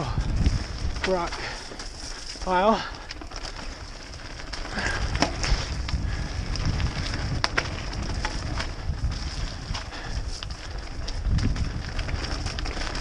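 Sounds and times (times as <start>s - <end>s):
bike clicks and rattles: 0.0s - 13.0s
tyres rumbling on trail: 0.0s - 13.0s
wind buffeting microphone: 0.0s - 13.0s.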